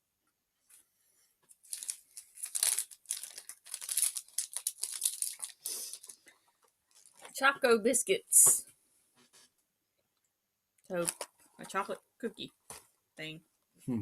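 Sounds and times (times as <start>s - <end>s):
plastic packaging rustling: 1.6s - 7.4s, 11.0s - 11.8s.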